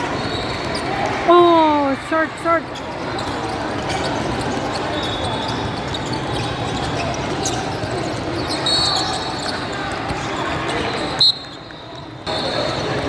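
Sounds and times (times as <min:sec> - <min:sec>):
spectator chatter: 0:00.0 - 0:13.0
high shoe squeaks: 0:02.8 - 0:13.0.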